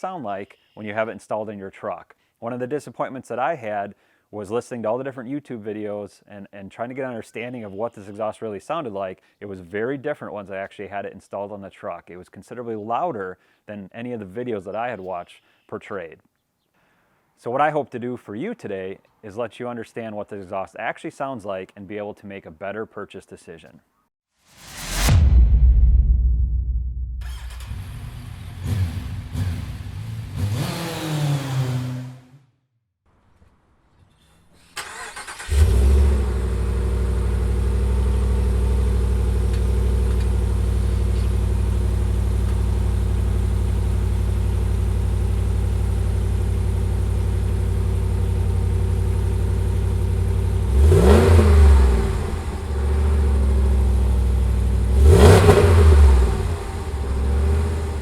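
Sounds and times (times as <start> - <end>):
car engine starting and idling: 27.2 - 32.2, 34.8 - 58.0
engine revving: 27.2 - 32.5, 34.8 - 41.4, 47.4 - 58.0.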